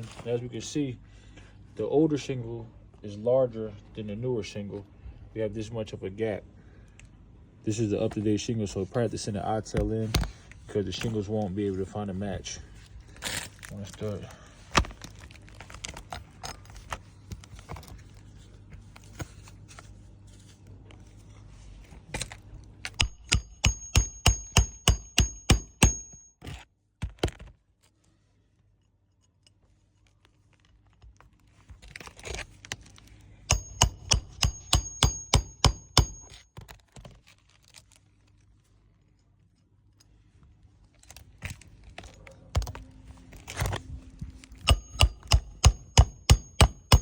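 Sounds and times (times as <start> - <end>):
scraping and handling of shingle: 0.0 - 0.6, 7.7 - 23.7, 26.0 - 47.0
hammer driving nails: 22.9 - 26.2, 33.5 - 36.4, 44.6 - 47.0.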